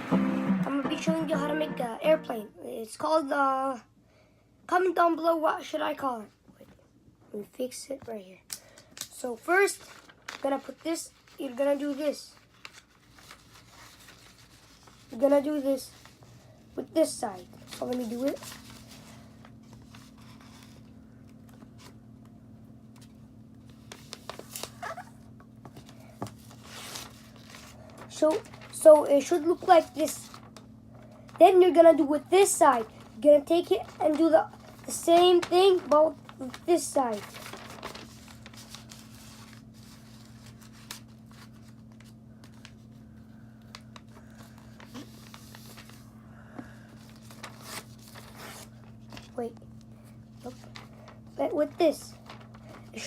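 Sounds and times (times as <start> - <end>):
paper rustling and crinkling: 8.6 - 22.2, 22.9 - 46.1, 46.9 - 53.0
low steady hum: 12.2 - 53.0.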